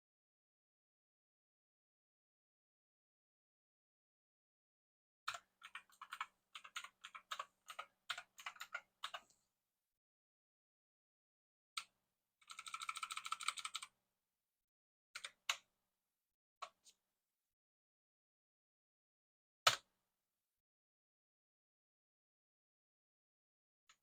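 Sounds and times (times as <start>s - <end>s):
typing on keyboard: 5.3s - 9.3s, 12.4s - 13.9s.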